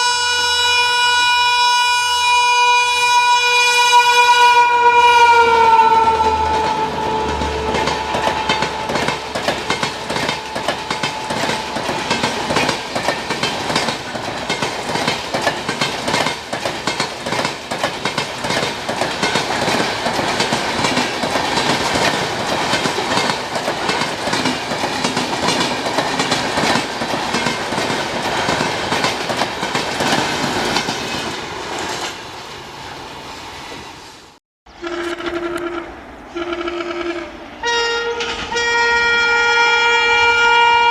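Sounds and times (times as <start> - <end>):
train horn: 0.0 - 12.7, 34.7 - 40.9
train wheels clacking over rail joints: 6.4 - 32.2.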